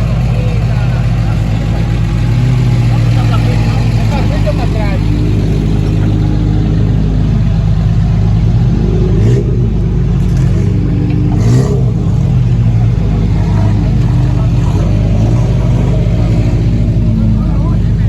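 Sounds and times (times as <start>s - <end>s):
vehicle engine revving: 0.0s - 18.0s.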